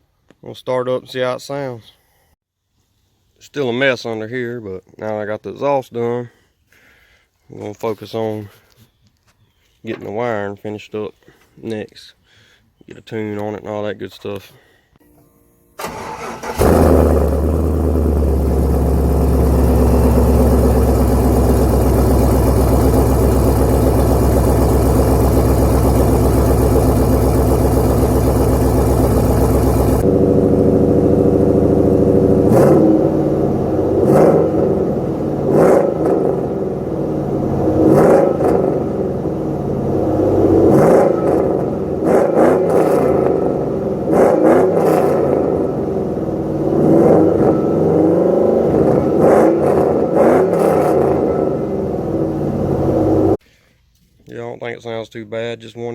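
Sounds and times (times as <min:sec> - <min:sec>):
car engine running and revving: 0:16.6 - 0:53.4.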